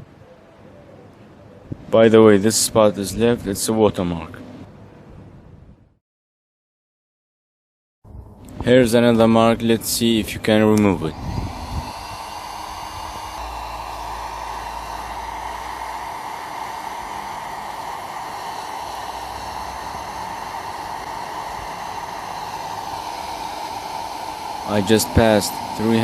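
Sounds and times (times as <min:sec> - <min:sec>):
heat gun hissing: 0:11.0 - 0:26.0.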